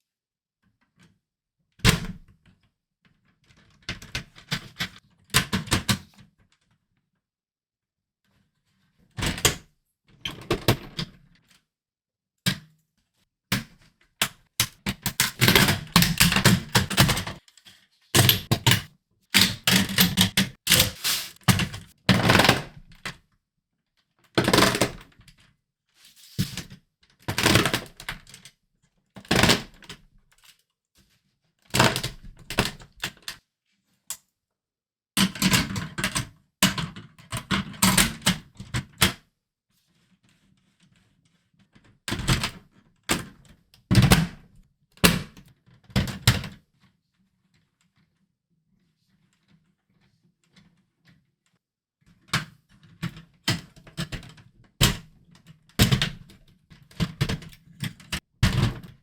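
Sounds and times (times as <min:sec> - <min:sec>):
plastic pieces clattering: 0:20.0 - 0:21.4.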